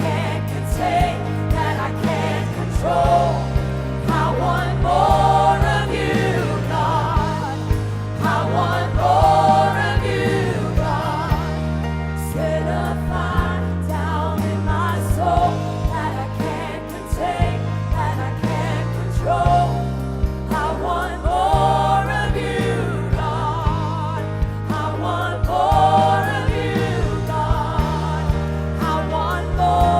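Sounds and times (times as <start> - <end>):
keyboard and bass chords: 0.0 - 29.9
voices singing with vibrato: 0.0 - 29.9.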